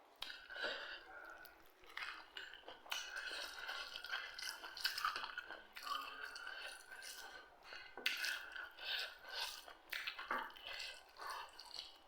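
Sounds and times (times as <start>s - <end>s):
chewing food: 0.1s - 12.0s.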